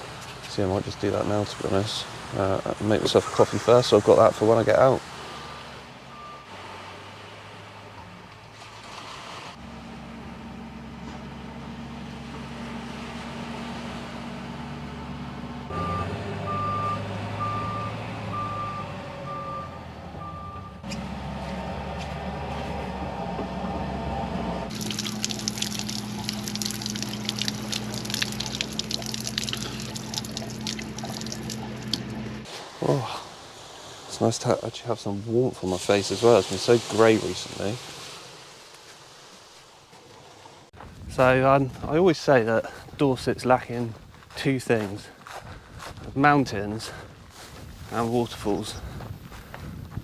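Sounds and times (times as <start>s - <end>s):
reversing alarm beeping: 6.1s - 6.5s, 15.7s - 20.8s
low hum: 9.6s - 32.4s
water bubbling and crackling: 24.7s - 40.8s.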